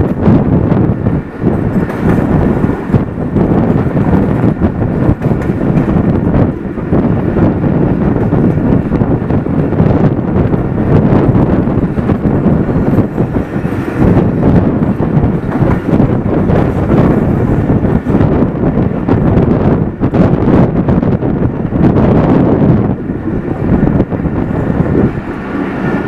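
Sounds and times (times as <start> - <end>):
train wheels clattering: 0.0 - 19.0
wind buffeting microphone: 0.0 - 26.0.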